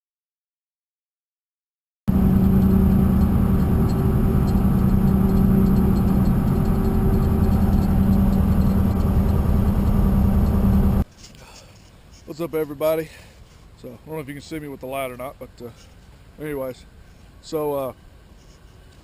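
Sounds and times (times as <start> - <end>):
engine running with low hum: 2.1 - 11.0.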